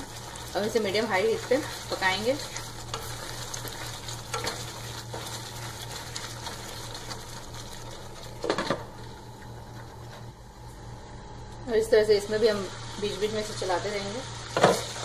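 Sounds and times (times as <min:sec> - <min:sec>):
wooden spatula scraping pot: 0:00.0 - 0:08.8
paste sizzling in a pot: 0:00.0 - 0:10.1, 0:12.2 - 0:15.0.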